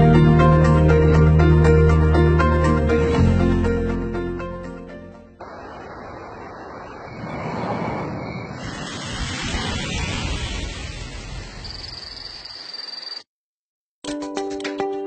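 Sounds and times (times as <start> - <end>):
steady rushing noise: 5.4 - 11.6.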